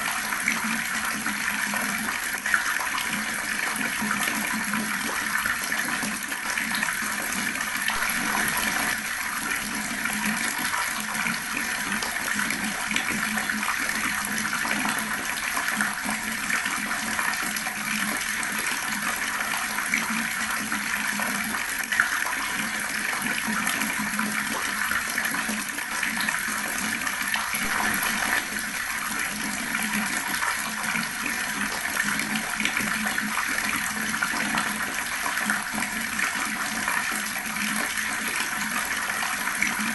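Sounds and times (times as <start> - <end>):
water running from tap: 0.0 - 39.9.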